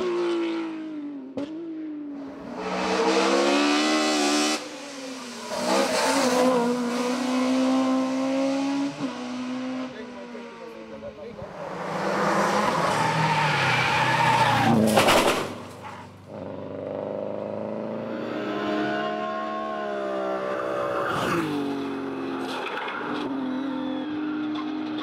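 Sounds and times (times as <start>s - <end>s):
racing car engines at full throttle: 0.0s - 25.0s
car passing by: 11.4s - 16.1s.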